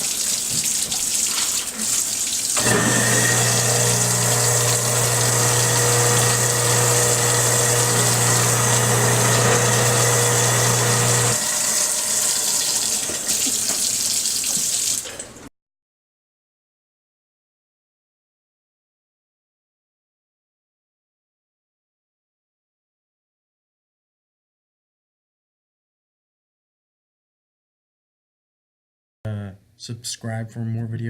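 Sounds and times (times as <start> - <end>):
tap water running into sink: 0.0 - 15.4
garbage disposal humming: 0.0 - 15.5.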